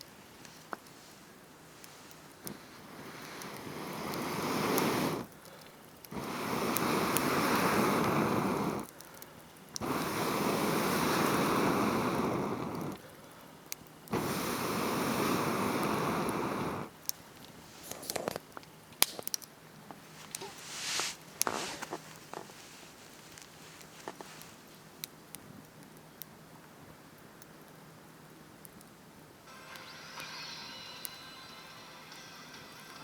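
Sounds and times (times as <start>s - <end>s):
air blown into campfire: 0.0s - 13.4s, 14.1s - 17.0s, 20.3s - 24.4s.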